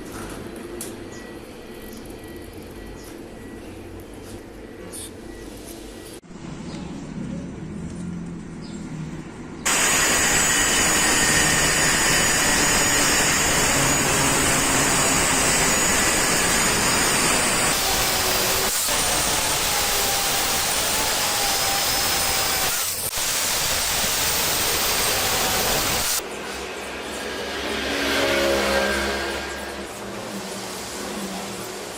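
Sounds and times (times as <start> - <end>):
welding arc hissing and crackling: 9.7 - 26.2.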